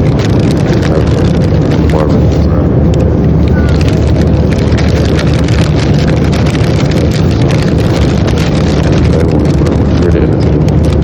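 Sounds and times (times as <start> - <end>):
jet engine rumble and rushing air: 0.0 - 11.0.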